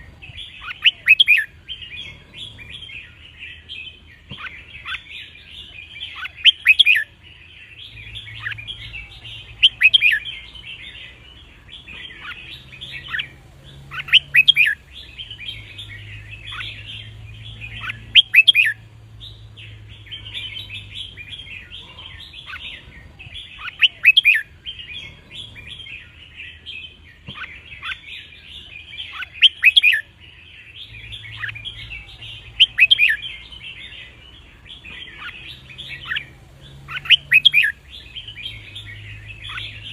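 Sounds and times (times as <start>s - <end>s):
bird chattering: 0.0s - 39.9s
birds whistled song phrases: 0.0s - 39.9s.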